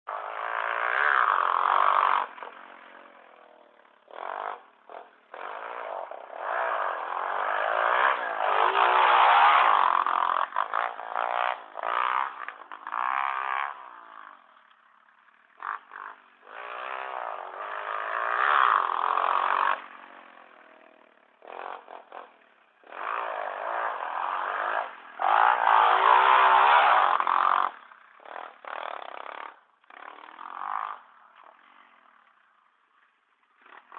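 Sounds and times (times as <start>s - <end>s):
motorbike engine revving: 0.1s - 32.6s, 33.4s - 33.9s.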